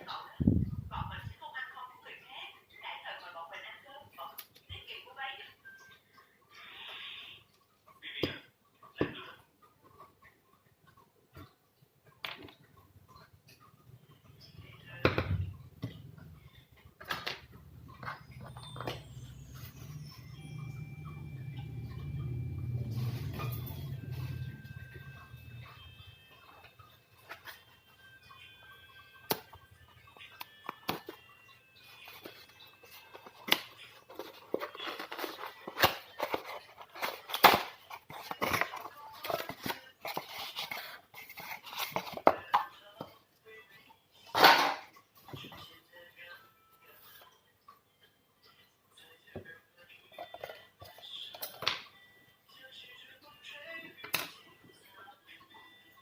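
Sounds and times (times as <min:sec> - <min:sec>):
plastic and metal parts handled: 0:32.0 - 0:42.7.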